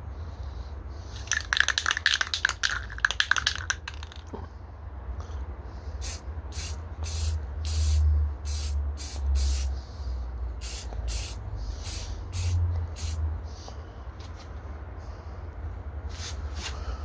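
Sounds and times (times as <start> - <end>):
spray gun hissing: 6.0 - 9.8, 10.6 - 13.2.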